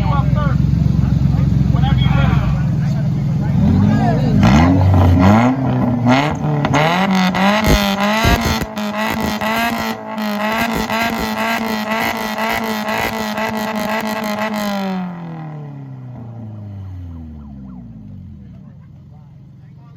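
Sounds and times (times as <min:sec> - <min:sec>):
engine revving through loud exhaust: 0:00.0 - 0:18.4
exhaust pops and cracks: 0:06.1 - 0:14.6.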